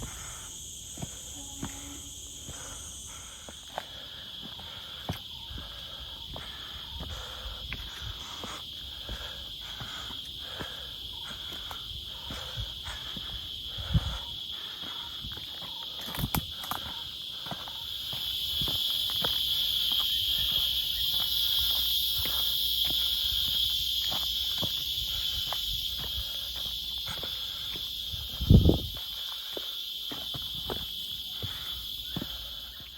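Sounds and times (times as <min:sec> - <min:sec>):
footsteps crunching on trail: 0:00.0 - 0:32.9
insects droning: 0:00.0 - 0:32.9.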